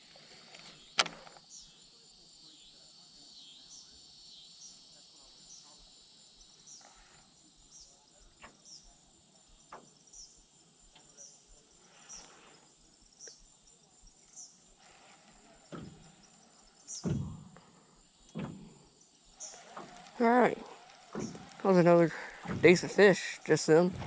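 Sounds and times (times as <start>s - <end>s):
insects droning: 0.0s - 24.0s
faint knocks: 15.1s - 24.0s.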